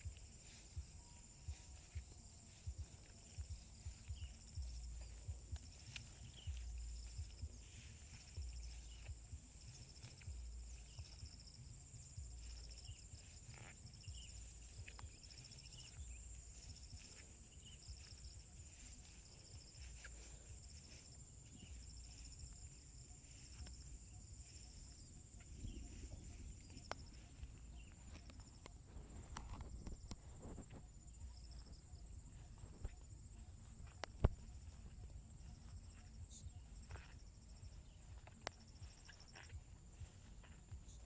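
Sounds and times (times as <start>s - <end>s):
soft low thuds: 0.0s - 21.0s
insect chirping in pulses: 0.0s - 41.0s.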